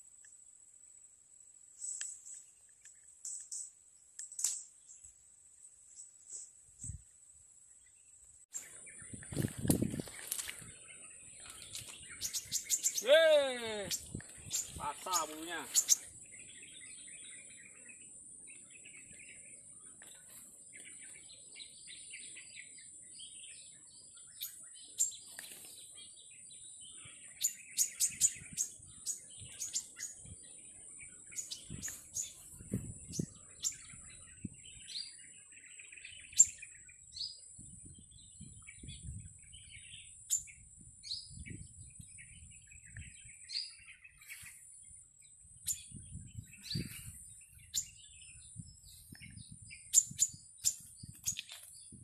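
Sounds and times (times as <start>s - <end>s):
small birds chirping: 1.6s - 52.0s
leaves rustling: 8.6s - 16.1s.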